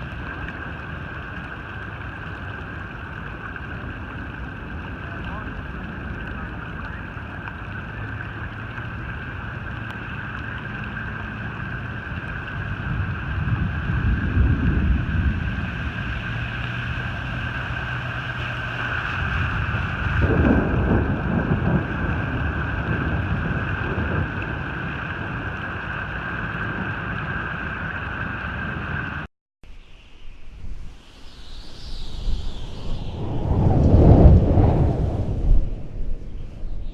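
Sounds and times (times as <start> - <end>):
wind buffeting microphone: 0.0 - 29.3, 30.3 - 36.9
steady rushing hiss: 29.7 - 36.9.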